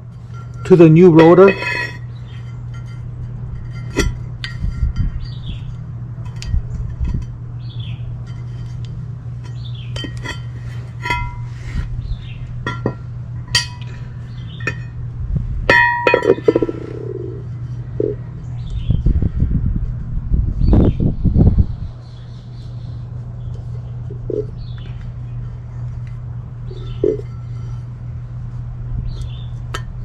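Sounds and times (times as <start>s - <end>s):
low hum: 0.0s - 30.0s
metal clinks on brake rotor: 0.1s - 15.0s, 15.7s - 18.8s.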